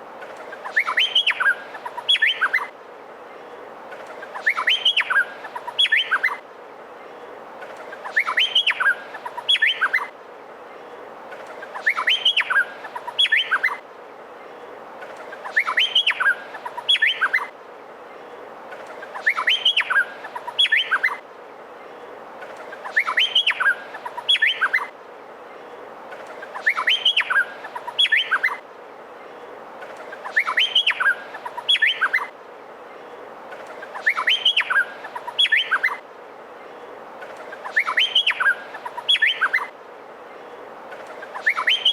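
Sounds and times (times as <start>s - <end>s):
bird whistled song: 0.6s - 2.7s, 4.3s - 6.4s, 8.0s - 10.1s, 11.7s - 13.8s, 15.4s - 17.5s, 19.1s - 21.2s, 22.8s - 24.9s, 26.4s - 28.6s, 30.2s - 32.3s, 33.8s - 36.0s, 37.6s - 39.7s, 41.2s - 41.9s.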